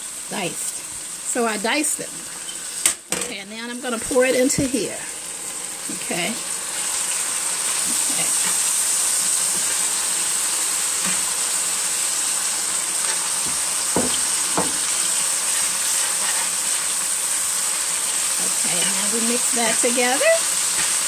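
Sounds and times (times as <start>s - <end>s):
meat and tomatoes sizzling: 0.0s - 21.0s
utensil knocks: 13.5s - 14.8s.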